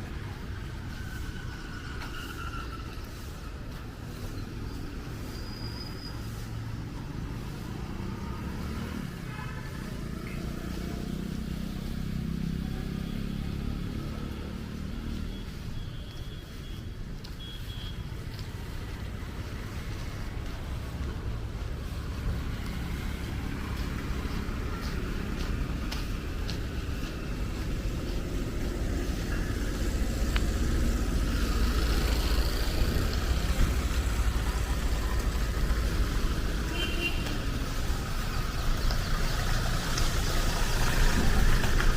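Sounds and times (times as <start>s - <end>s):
low rumble of road noise: 0.0s - 41.9s
vehicle engine passing: 6.2s - 15.4s.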